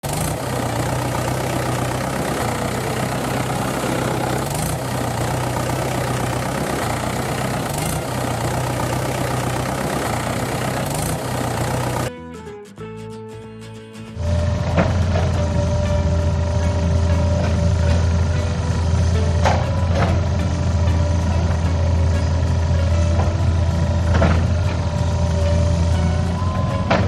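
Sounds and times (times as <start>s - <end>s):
engine idling: 0.0s - 12.1s, 14.2s - 27.0s.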